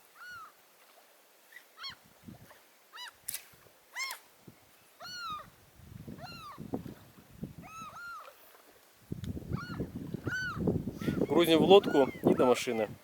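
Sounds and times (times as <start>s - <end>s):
animal crying: 7.6s - 8.3s, 9.5s - 12.4s.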